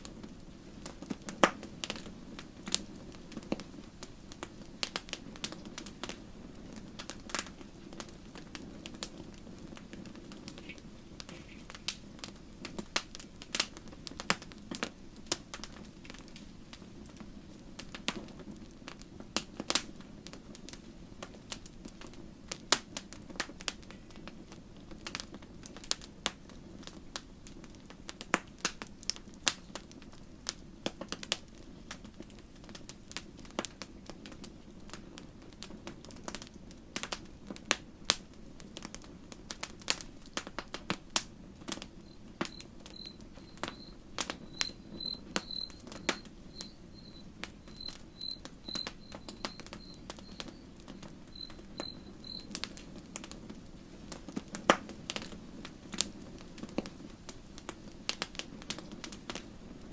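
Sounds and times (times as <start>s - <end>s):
campfire crackling: 0.0s - 59.9s
cricket chirping: 42.0s - 52.5s.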